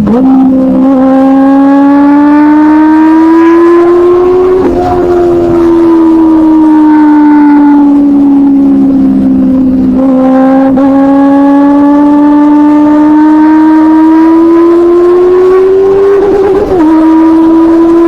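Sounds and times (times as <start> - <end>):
motorcycle engine at high revs: 0.0 - 18.0.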